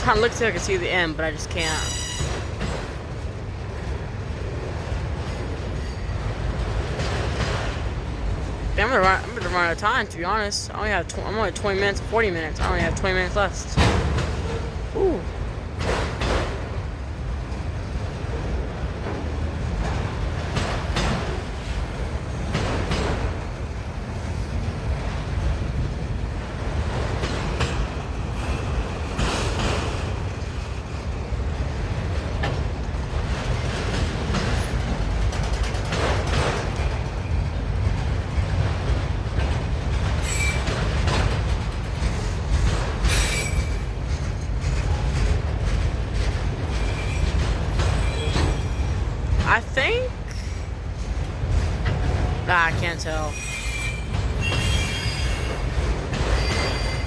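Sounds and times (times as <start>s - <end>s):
train wheels rumbling on rail: 0.0s - 57.0s
wheel squeals: 1.8s - 2.6s, 43.0s - 43.9s, 53.3s - 55.6s, 56.2s - 57.0s.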